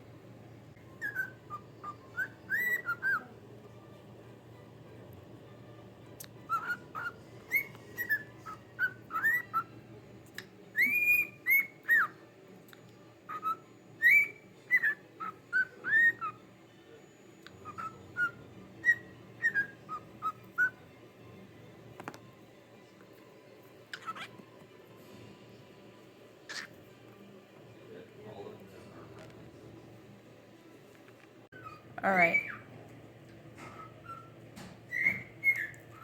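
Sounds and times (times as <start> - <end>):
pet bird whistling chirpy notes: 0.8 - 3.3, 6.3 - 9.7, 10.8 - 12.2, 13.3 - 16.4, 17.5 - 20.8, 33.7 - 36.0.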